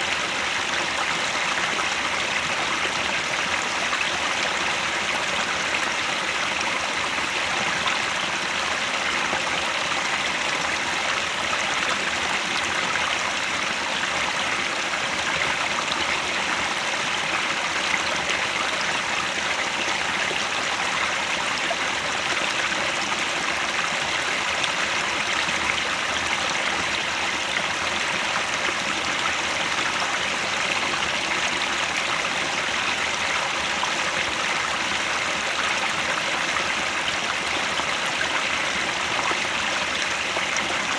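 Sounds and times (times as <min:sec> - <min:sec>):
mountain stream flowing: 0:00.0 - 0:40.9.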